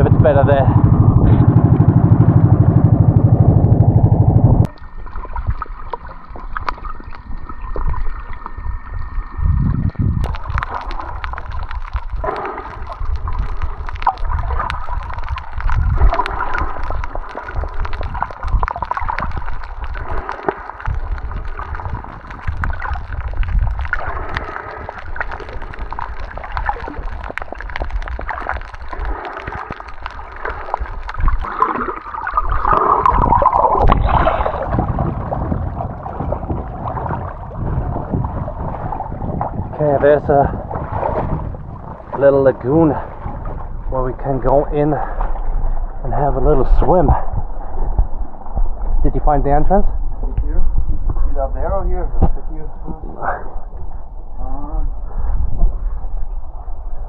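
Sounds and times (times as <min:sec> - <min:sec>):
boat engine running: 0:00.0 - 0:06.5
water gurgling and sloshing: 0:00.0 - 0:57.0.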